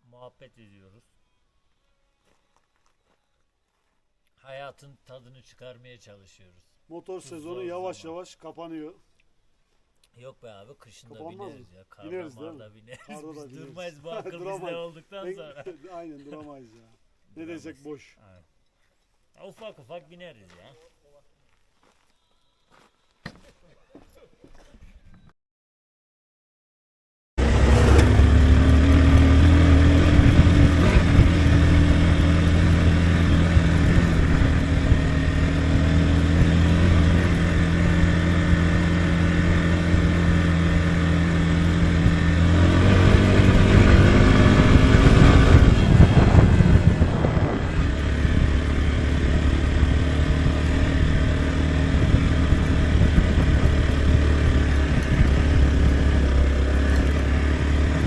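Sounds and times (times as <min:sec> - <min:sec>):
motorcycle engine running: 0:27.4 - 0:58.0.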